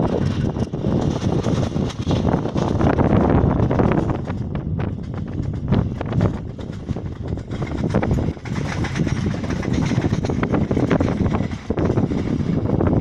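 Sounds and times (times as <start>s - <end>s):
distant passenger train rumbling: 0.0s - 13.0s.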